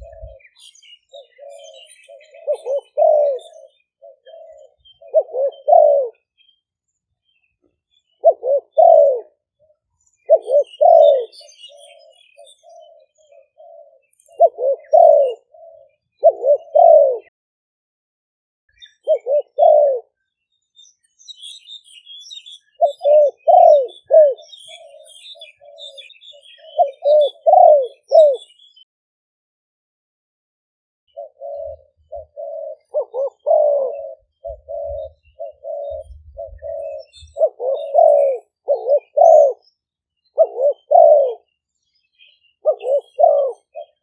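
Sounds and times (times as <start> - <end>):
doves cooing: 0.0 - 6.3, 8.1 - 17.3, 19.0 - 20.2, 22.7 - 28.8, 31.1 - 39.7, 40.3 - 41.6, 42.6 - 44.0
faint high bird chirps: 0.0 - 17.3, 18.7 - 28.9, 31.1 - 44.0.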